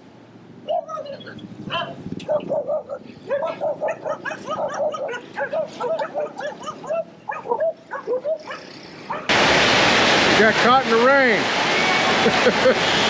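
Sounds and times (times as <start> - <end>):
dogs barking rapidly: 2.2 - 9.4.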